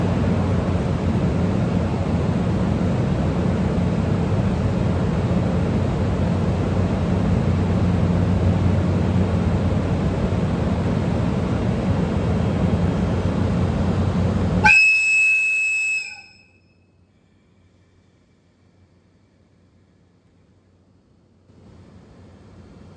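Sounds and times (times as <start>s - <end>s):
train low hum and rushing: 0.0s - 22.9s
locomotive air whistle blast: 14.6s - 16.9s.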